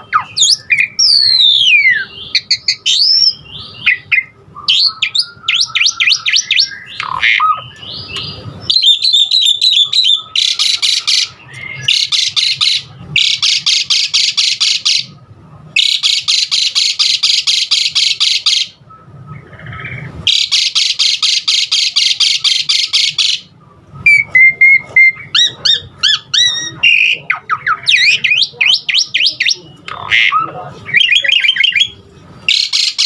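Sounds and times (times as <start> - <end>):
starling whistled notes: 0.0 - 12.6
starling harsh chattering: 3.9 - 15.2, 15.8 - 18.8, 24.1 - 33.0.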